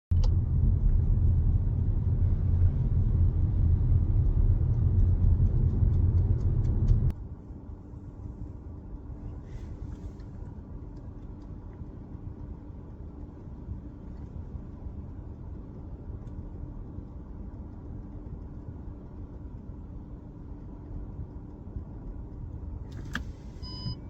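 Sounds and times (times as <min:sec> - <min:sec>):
loud deep wind rumble: 0:00.1 - 0:07.1
car driving noise: 0:00.2 - 0:24.0
faint low hum: 0:00.2 - 0:24.0.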